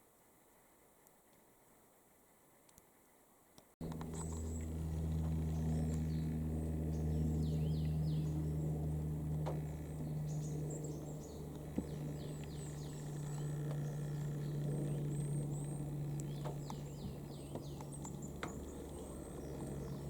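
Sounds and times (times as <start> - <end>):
low mechanical hum: 2.5 - 20.0
birds calling: 3.8 - 20.0.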